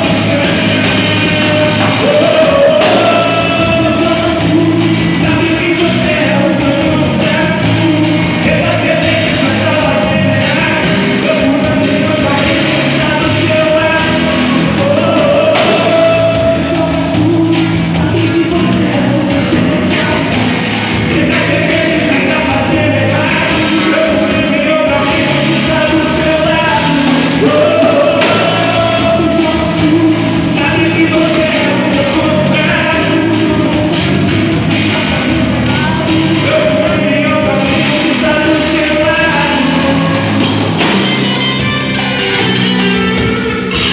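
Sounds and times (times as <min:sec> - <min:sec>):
lead vocalist singing: 0:00.0 - 0:43.9
live band playing: 0:00.0 - 0:43.9.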